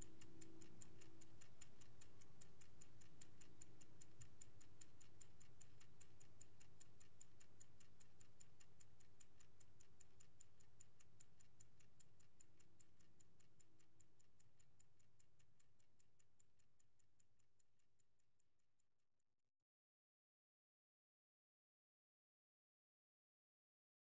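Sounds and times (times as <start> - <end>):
mechanical clock ticking: 0.0 - 18.5.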